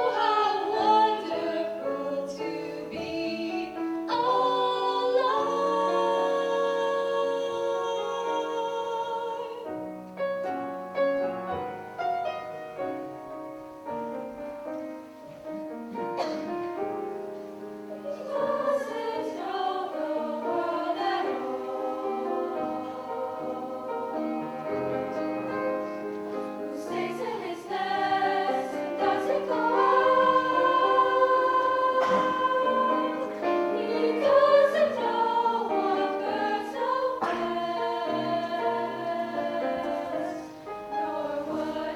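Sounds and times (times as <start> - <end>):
vocal ensemble singing harmony: 0.0 - 9.9, 17.7 - 41.9.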